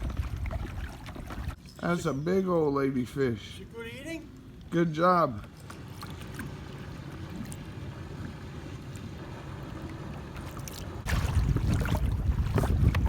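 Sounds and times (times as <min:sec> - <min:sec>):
wind noise on microphone: 0:00.0 - 0:01.6, 0:11.0 - 0:13.0
water around a kayak: 0:00.0 - 0:13.0.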